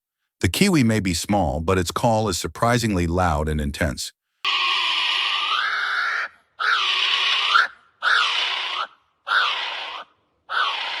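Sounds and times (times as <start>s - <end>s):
kiwi calling shrill cries: 4.4s - 11.0s.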